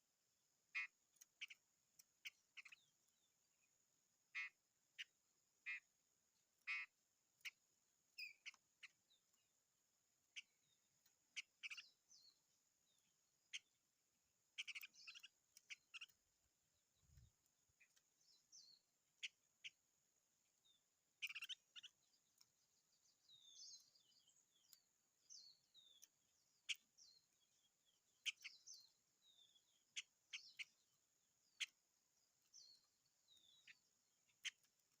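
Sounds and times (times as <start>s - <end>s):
songbird chirping and whistling: 14.6s - 16.2s, 20.6s - 30.8s, 31.4s - 34.7s.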